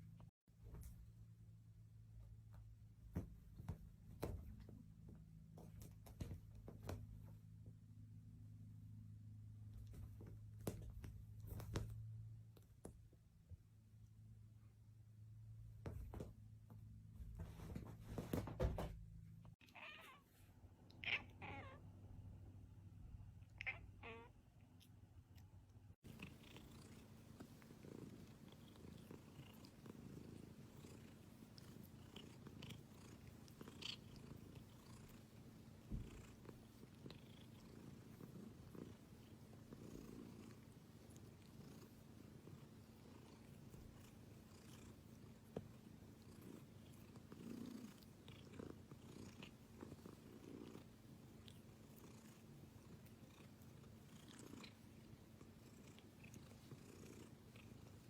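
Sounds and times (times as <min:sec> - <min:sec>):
cat purring: 0:26.0 - 0:58.0.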